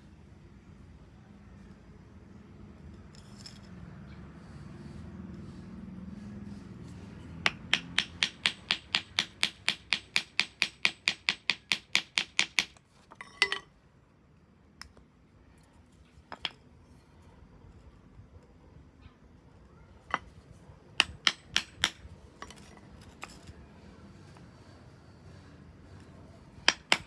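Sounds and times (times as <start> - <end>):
hammer striking metal on anvil: 7.5 - 12.7.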